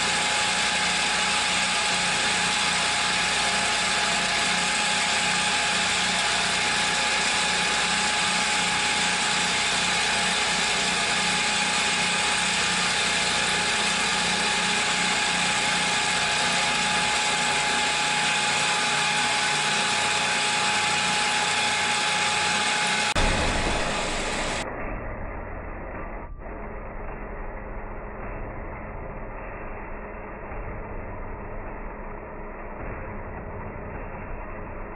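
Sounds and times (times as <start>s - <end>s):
milling machine cutting: 0.0s - 24.6s.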